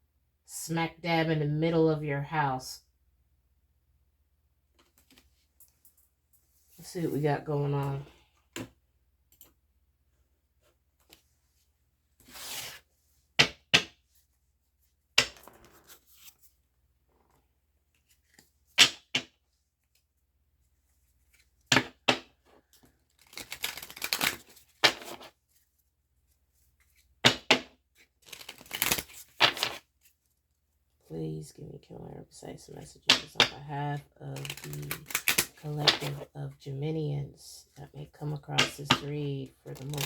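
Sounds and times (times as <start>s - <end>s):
cards being shuffled: 12.2s - 12.8s, 23.1s - 25.3s, 28.2s - 30.1s, 34.4s - 36.3s, 38.6s - 40.0s.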